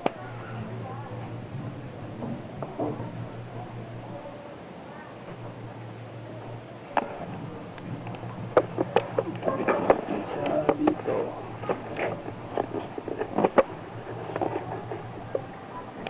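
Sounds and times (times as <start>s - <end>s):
small hard parts clicking: 6.9s - 16.0s.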